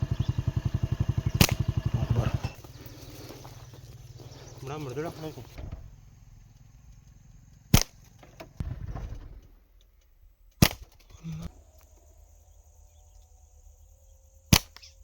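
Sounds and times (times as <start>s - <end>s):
dull low rustles: 0.0s - 7.7s
slingshot shots snapping: 1.4s - 1.7s, 7.7s - 8.1s, 10.5s - 11.3s, 14.5s - 15.0s.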